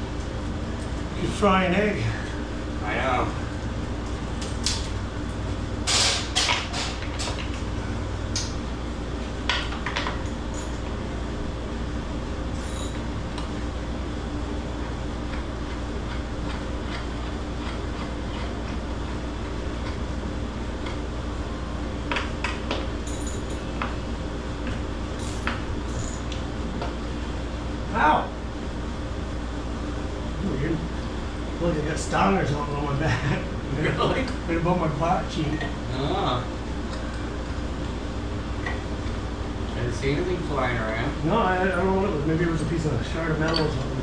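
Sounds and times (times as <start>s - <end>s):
air conditioning hum: 0.0s - 44.0s
metal tools clinking: 23.1s - 23.7s, 25.2s - 26.3s.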